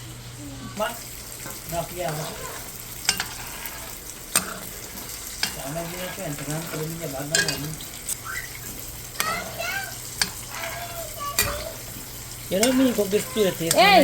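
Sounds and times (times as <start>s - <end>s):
fish frying in oil: 0.0s - 14.0s
utensil clicking against pan: 10.2s - 11.7s, 12.5s - 13.8s.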